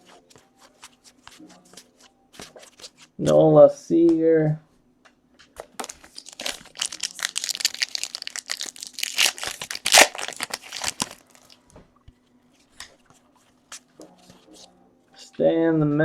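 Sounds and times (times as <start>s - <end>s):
wrapper crinkling: 5.8s - 11.6s.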